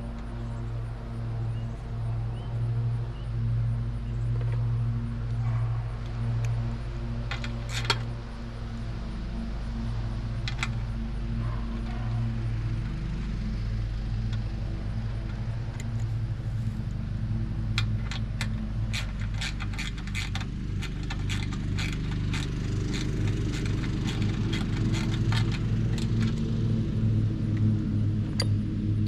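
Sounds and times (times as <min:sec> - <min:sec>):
small engine running: 0:00.0 - 0:29.0
metallic clicks and rattles: 0:07.2 - 0:08.2, 0:10.3 - 0:10.9, 0:17.7 - 0:26.6.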